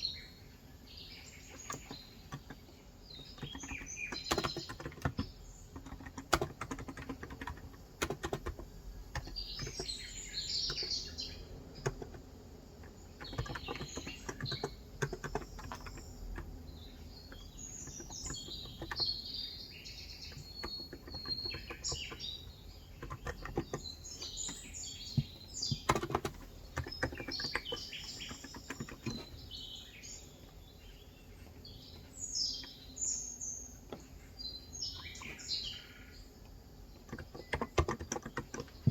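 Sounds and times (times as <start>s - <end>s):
birds twittering: 0.0s - 38.9s
soft keyboard keystroke clacks: 1.5s - 10.0s, 11.8s - 19.2s, 20.2s - 29.5s, 36.4s - 38.9s.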